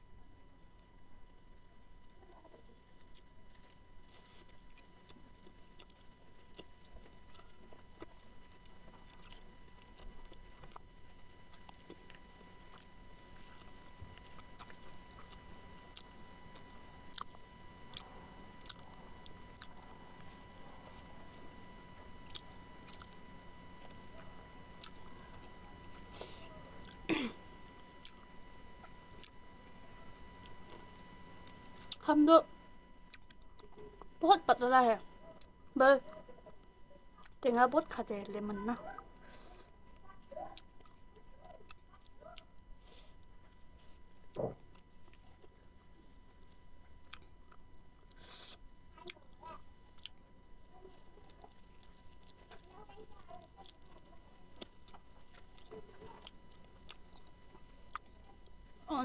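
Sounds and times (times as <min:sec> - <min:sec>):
wet chewing mouth clicks: 0:02.0 - 0:21.1, 0:22.2 - 0:23.2, 0:24.8 - 0:27.0, 0:31.4 - 0:32.1, 0:49.9 - 0:58.6
throat clearing: 0:27.0 - 0:27.4, 0:44.4 - 0:44.6.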